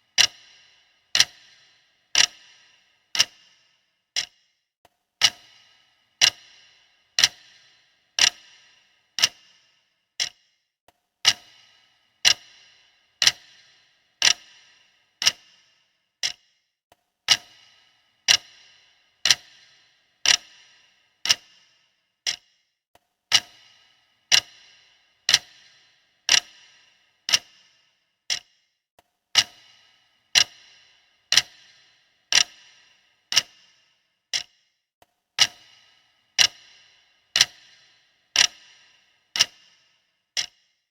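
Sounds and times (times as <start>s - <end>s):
clock ticking: 0.0s - 4.6s, 5.2s - 10.6s, 11.2s - 16.6s, 17.3s - 22.7s, 23.3s - 34.8s, 35.4s - 40.9s.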